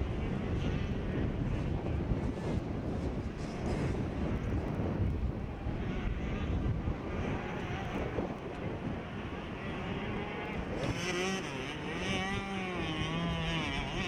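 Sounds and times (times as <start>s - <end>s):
close engine rising and wavering: 0.0s - 14.0s
motocross bike engines revving: 3.2s - 14.0s.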